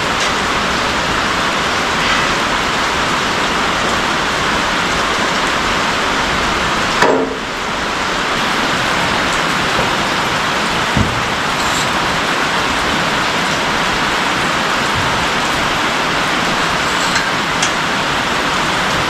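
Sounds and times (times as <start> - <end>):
heavy rain: 0.0 - 19.0
knock: 11.0 - 12.0.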